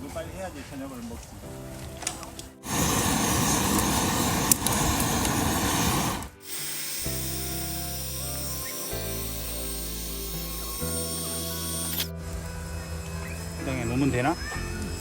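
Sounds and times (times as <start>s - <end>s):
background music: 0.0s - 15.0s
loud rushing hiss: 2.6s - 12.1s.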